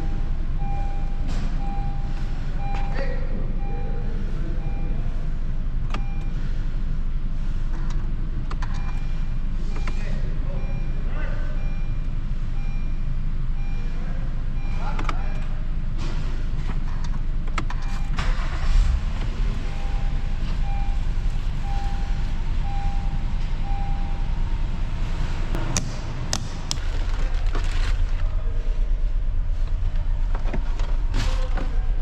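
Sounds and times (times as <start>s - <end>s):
car engine rumbling: 0.0s - 32.0s
short electronic beeps: 19.6s - 24.4s.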